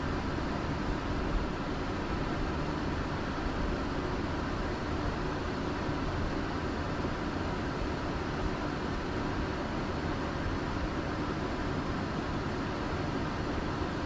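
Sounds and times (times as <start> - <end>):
aircraft cockpit low rumble: 0.0 - 14.0.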